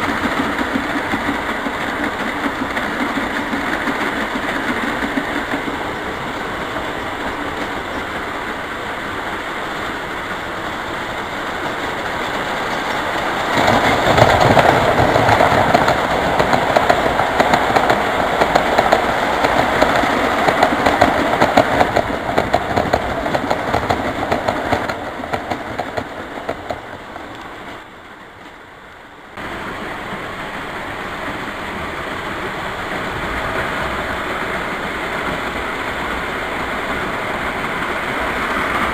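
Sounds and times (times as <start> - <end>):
model train wheels rattling on rails: 0.0 - 8.3.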